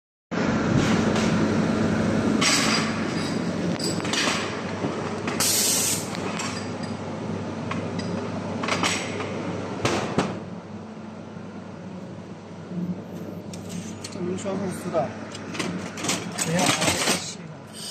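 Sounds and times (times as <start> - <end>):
short hissing bursts: 5.4 - 6.1.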